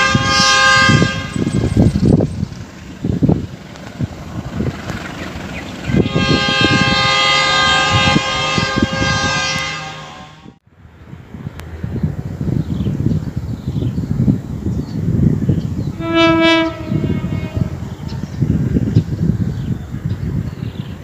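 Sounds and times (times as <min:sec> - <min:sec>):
train horn blasts: 0:00.0 - 0:01.8, 0:05.9 - 0:10.6, 0:16.0 - 0:18.1
train wheels clattering on track: 0:01.4 - 0:06.2.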